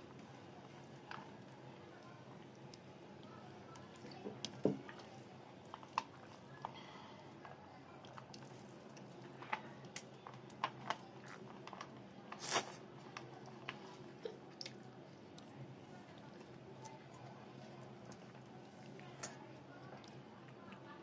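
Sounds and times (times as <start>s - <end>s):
person chewing food: 7.4s - 15.5s.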